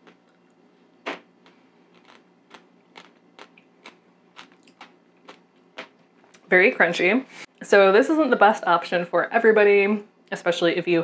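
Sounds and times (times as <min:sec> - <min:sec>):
seed shells cracking while chewing: 0:01.4 - 0:06.0.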